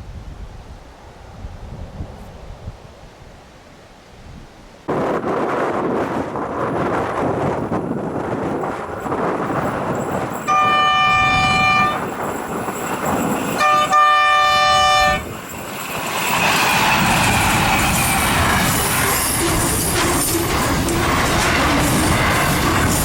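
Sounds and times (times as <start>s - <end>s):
train rumble and wheel noise: 0.0s - 3.8s, 4.8s - 23.0s
gusty wind: 0.0s - 23.0s
locomotive horn blasts: 10.5s - 12.1s, 13.5s - 15.3s.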